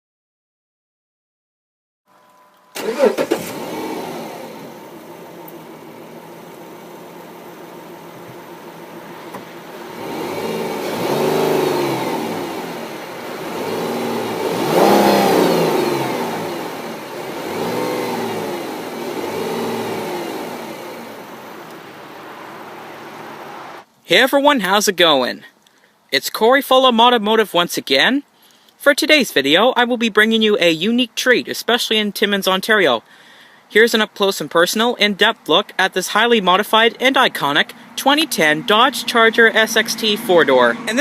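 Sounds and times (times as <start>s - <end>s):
car engine starting and idling: 2.2s - 24.0s, 35.2s - 41.0s
engine revving: 2.8s - 23.8s, 37.7s - 41.0s.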